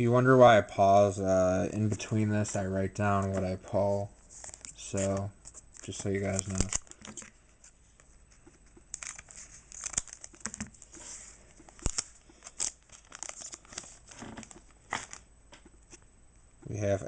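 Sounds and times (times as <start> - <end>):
foil wrapper crinkling and tearing: 5.8 - 7.3, 8.9 - 15.3.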